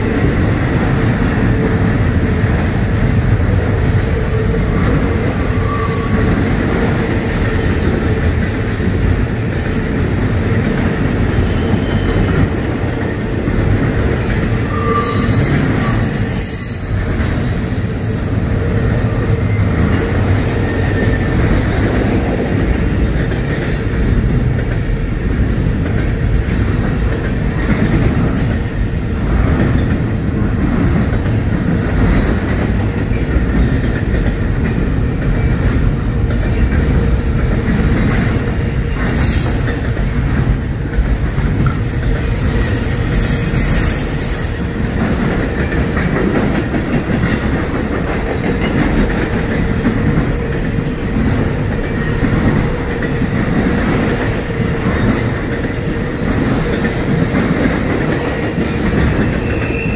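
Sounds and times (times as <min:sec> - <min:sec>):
freight train wheels clattering: 0:00.0 - 0:59.9
high wheel squeal: 0:14.6 - 0:18.9, 0:20.6 - 0:21.4, 0:42.2 - 0:44.7.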